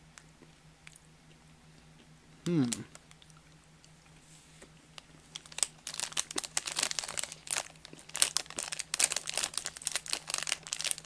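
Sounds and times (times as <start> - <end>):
plastic pouch crinkling: 5.3 - 11.0.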